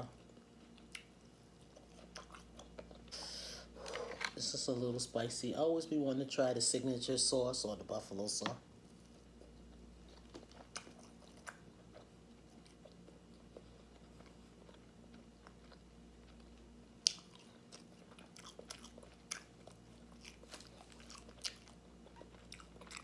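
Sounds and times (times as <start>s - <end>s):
person chewing food: 0.1s - 4.4s, 8.9s - 23.0s.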